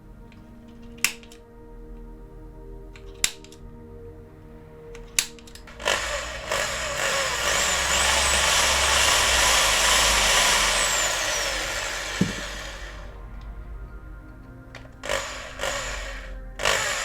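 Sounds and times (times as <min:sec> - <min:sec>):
electric drill grinding into metal: 0:05.2 - 0:13.2, 0:14.9 - 0:17.0.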